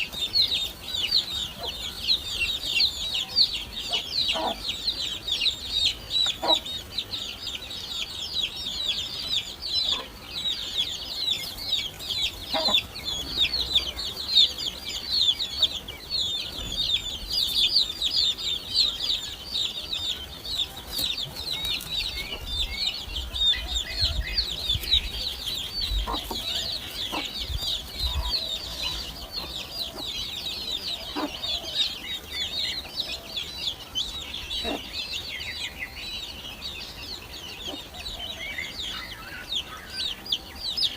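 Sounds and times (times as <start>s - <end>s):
nestlings chirping: 0.0s - 40.9s.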